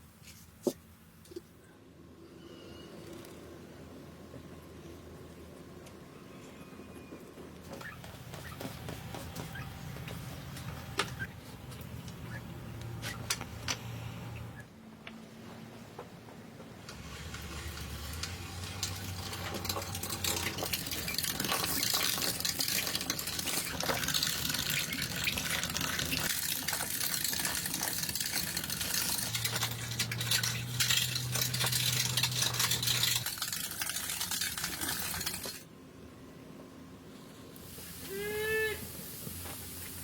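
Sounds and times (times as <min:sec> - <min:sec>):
clinking and splashing in vessel: 0:17.1 - 0:35.6.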